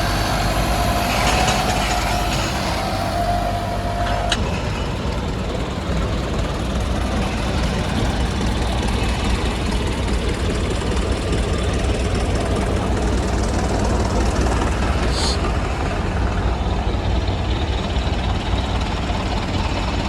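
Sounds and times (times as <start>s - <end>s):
heavy machinery engine drone: 0.0s - 20.0s.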